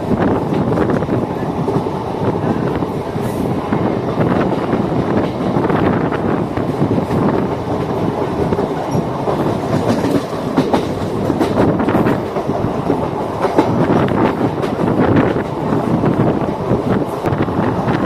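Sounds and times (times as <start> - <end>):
train wheels clattering on rails: 0.0 - 18.0.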